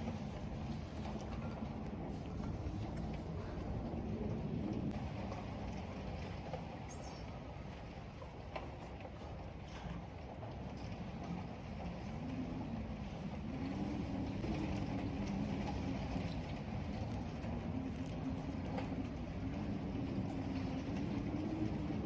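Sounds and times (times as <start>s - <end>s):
storm wind howling: 0.0s - 6.1s, 10.2s - 22.0s.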